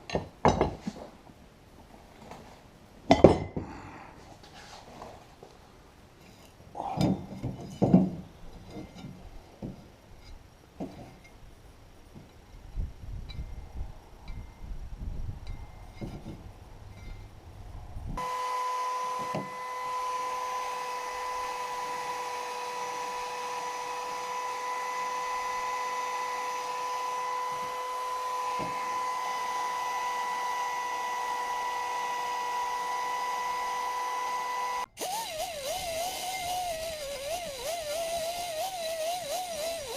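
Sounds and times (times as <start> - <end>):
low rumbling handling noise: 7.0 - 18.2.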